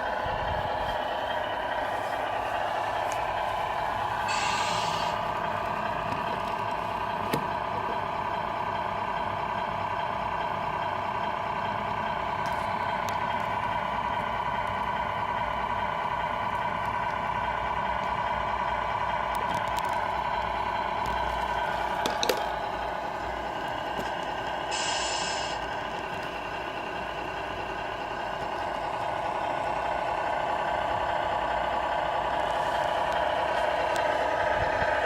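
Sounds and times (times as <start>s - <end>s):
model truck humming: 0.0s - 35.0s.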